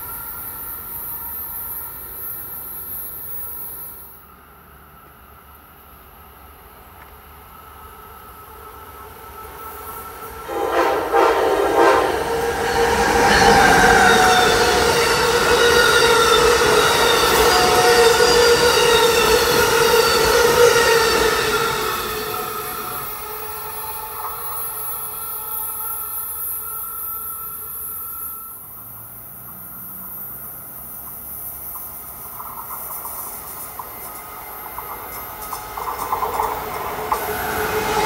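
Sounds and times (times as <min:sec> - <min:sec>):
passenger train rushing past: 0:00.0 - 0:38.0
train horn blasts: 0:10.2 - 0:28.6.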